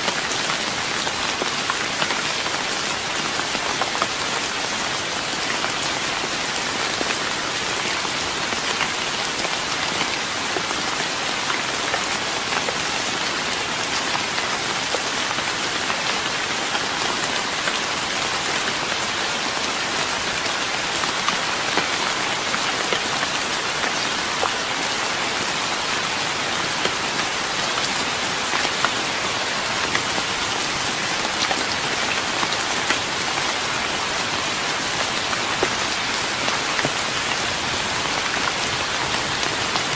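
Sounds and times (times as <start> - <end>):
rain on a wooden deck: 0.0 - 39.9.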